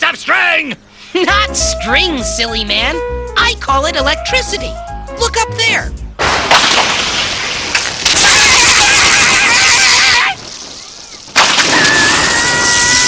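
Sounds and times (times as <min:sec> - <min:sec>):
crackling electrical buzz: 0:06.2 - 0:13.0.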